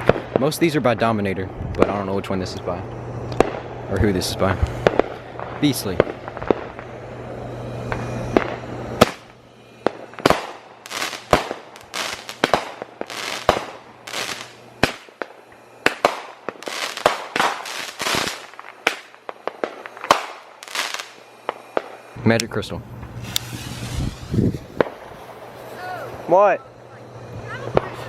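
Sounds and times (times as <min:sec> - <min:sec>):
firework bursting reports: 0:00.0 - 0:28.0
firework crackling: 0:00.0 - 0:28.0
firework launch thumps: 0:23.0 - 0:25.2.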